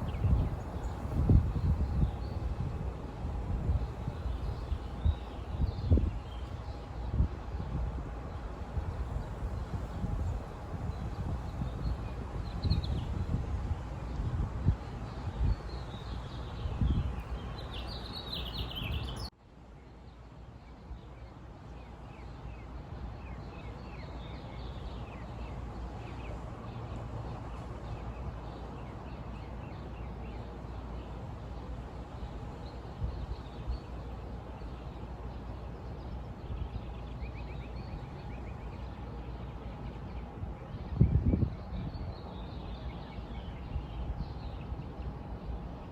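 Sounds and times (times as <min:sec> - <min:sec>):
birds chirping: 0:15.2 - 0:19.3.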